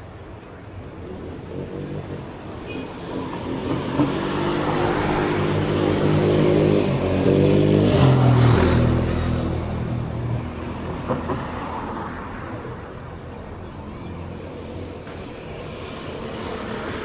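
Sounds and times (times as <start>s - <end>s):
passing vehicle engine: 1.1s - 13.0s.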